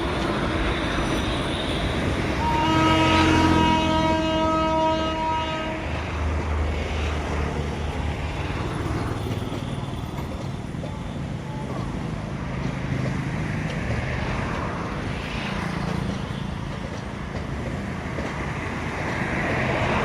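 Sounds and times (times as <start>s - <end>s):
running train rumble: 0.0s - 20.0s
locomotive horn blast: 1.5s - 6.0s.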